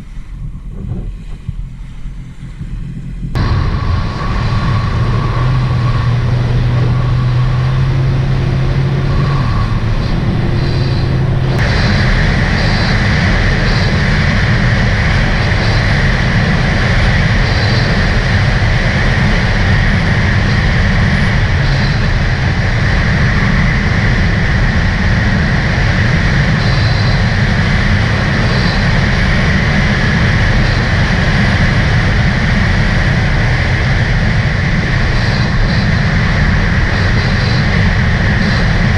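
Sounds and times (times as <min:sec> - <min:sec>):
watercraft engine running: 0:00.0 - 0:38.9
wind: 0:00.0 - 0:38.9
bright hiss: 0:03.4 - 0:23.4.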